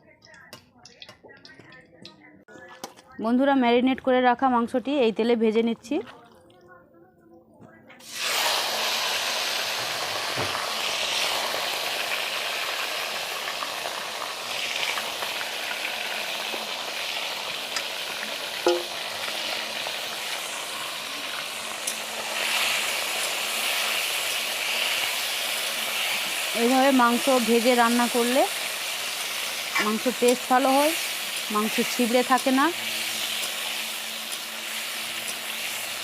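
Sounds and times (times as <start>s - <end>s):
chicken sizzling in hot oil: 8.0s - 36.0s
utensil clink: 18.6s - 18.9s.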